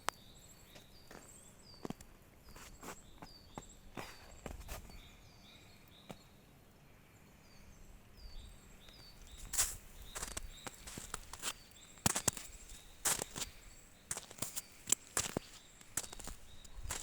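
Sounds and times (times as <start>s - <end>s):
songbirds calling: 0.0s - 17.0s
crunching footsteps: 8.9s - 17.0s.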